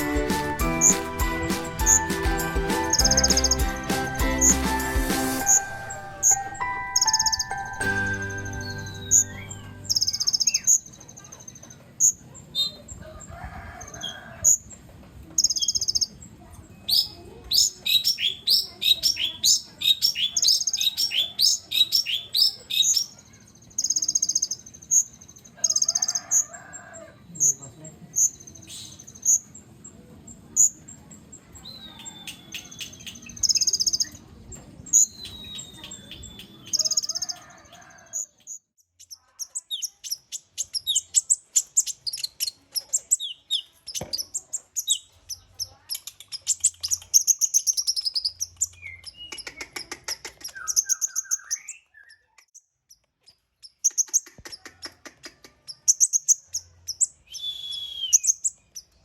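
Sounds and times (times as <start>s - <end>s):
sunbirds chirping and twittering: 2.8s - 59.0s
short gliding whistles: 57.3s - 58.3s.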